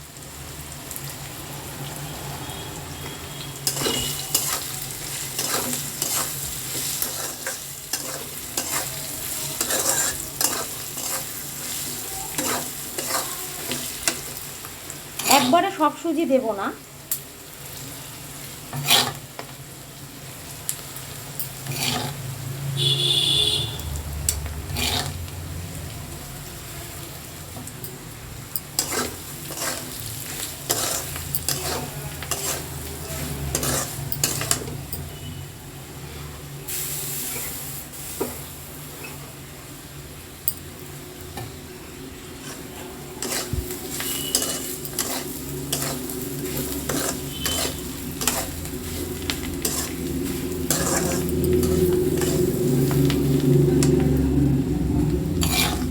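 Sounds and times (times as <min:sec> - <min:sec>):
metal spatula scraping a pan: 0:03.6 - 0:14.5, 0:15.2 - 0:15.8, 0:18.7 - 0:19.6, 0:21.4 - 0:23.8, 0:24.6 - 0:25.3, 0:28.6 - 0:35.4, 0:42.3 - 0:54.1, 0:55.3 - 0:55.9.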